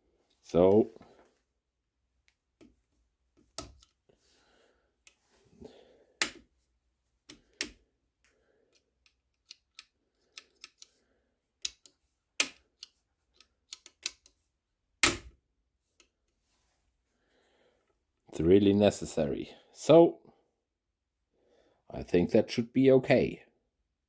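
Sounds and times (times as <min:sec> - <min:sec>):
soft handling noise: 0:00.1 - 0:01.6, 0:02.2 - 0:11.1, 0:15.8 - 0:17.2.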